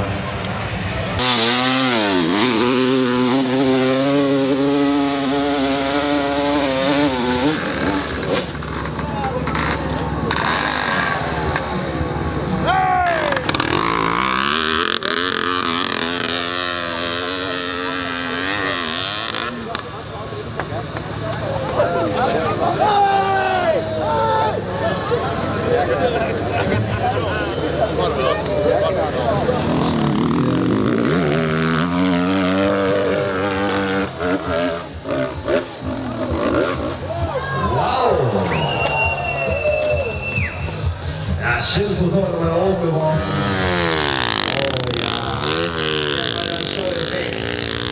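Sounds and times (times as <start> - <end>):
dirt bike engine revving: 0.8 - 21.2, 29.0 - 37.1, 43.0 - 47.9.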